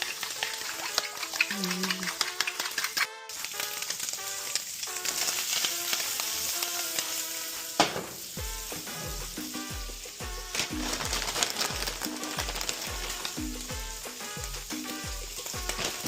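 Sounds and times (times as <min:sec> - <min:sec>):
background music: 0:00.0 - 0:16.0
food frying and sizzling: 0:00.0 - 0:16.0
deep drum beat: 0:07.8 - 0:16.0.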